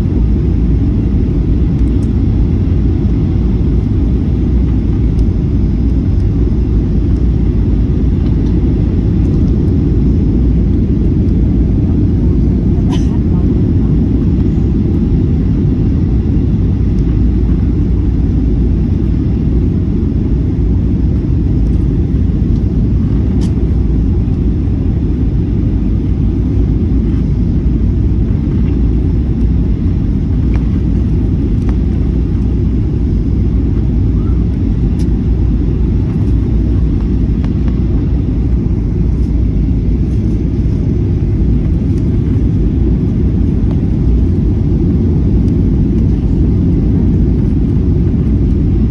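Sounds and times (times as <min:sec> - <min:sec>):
airliner cabin rumble: 0:00.0 - 0:48.9.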